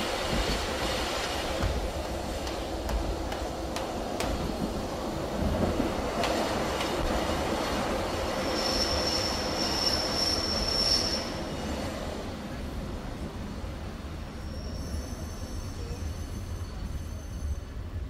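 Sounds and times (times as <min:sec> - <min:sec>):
train wheels rumbling on track: 0:00.0 - 0:18.0
high wheel squeal: 0:08.4 - 0:11.5, 0:14.4 - 0:17.8.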